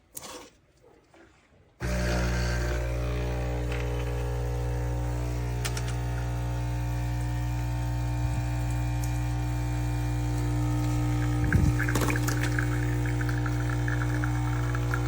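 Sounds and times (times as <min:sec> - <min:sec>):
coffee sputtering into cup: 0:01.8 - 0:07.6, 0:10.0 - 0:15.0
espresso machine pump humming: 0:01.8 - 0:15.0.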